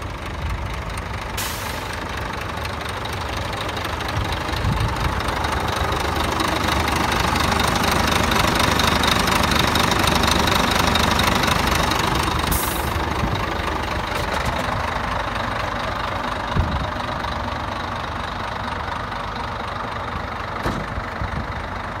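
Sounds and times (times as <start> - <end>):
diesel truck engine idling: 0.0 - 22.0.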